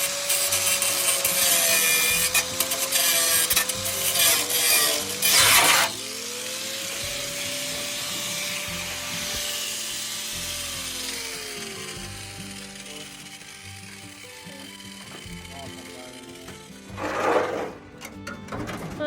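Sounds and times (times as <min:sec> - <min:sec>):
power tool cutting: 0:00.0 - 0:18.2.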